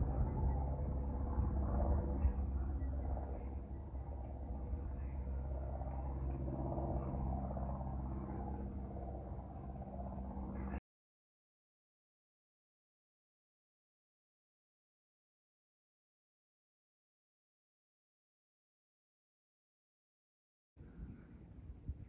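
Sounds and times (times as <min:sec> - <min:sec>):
aircraft engine rumble: 0:00.0 - 0:10.8.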